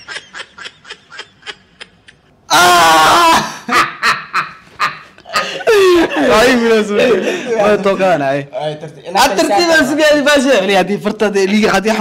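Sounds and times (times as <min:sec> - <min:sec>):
men laughing: 0:00.0 - 0:08.4.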